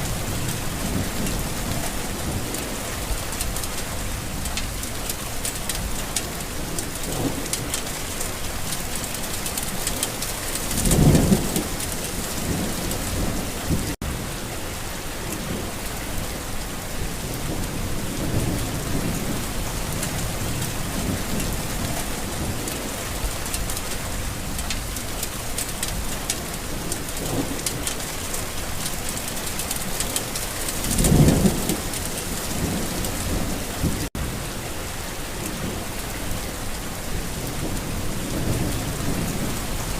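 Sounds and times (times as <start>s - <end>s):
heavy rain falling: 0.0s - 39.9s
thunder rumbling: 9.6s - 14.0s.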